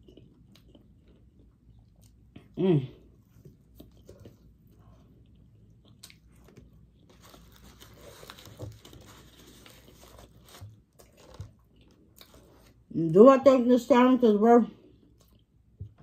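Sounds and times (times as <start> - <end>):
chewing fries: 0.0 - 12.8, 14.8 - 16.0
paper wrapper crinkling: 7.0 - 11.6.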